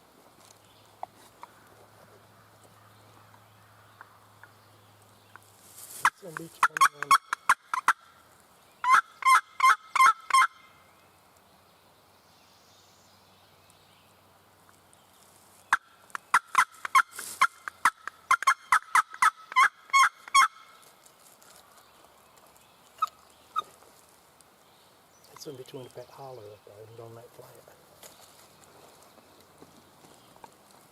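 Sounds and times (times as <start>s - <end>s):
turkey yelping: 6.6s - 8.1s, 8.8s - 10.7s, 15.7s - 20.7s.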